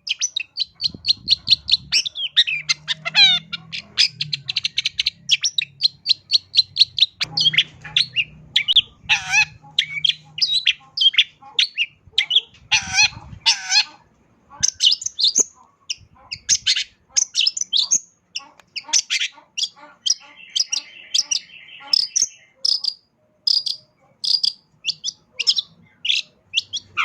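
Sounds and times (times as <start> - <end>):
shrike singing: 0.0 - 13.9
harsh bird calls: 0.0 - 27.0.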